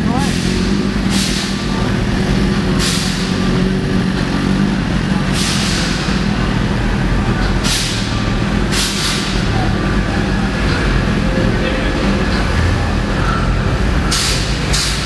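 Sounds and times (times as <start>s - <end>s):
air hissing: 0.3s - 6.4s, 7.6s - 11.4s.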